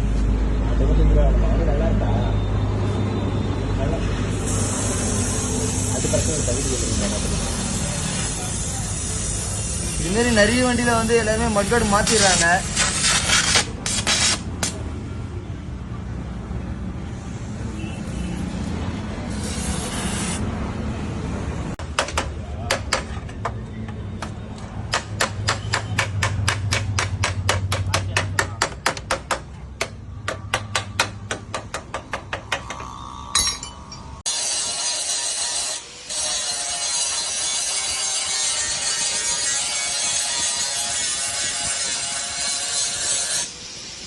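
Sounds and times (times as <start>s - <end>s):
hammer tapping on steel: 21.8s - 34.1s.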